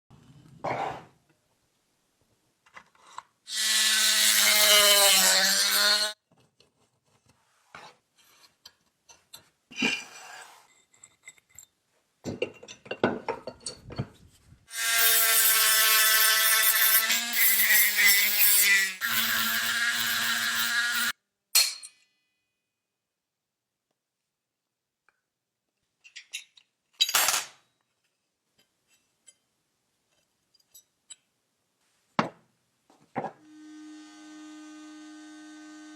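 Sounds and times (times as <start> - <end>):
small electric power tool: 3.5 - 6.2, 14.7 - 21.2, 33.4 - 35.9
knocks and scraping of parts: 6.2 - 14.6.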